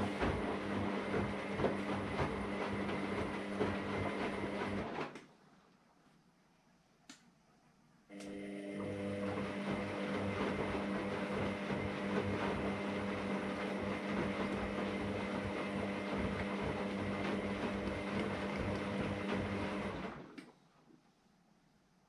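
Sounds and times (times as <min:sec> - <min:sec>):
washer-dryer running: 0:00.0 - 0:05.2, 0:08.1 - 0:20.5.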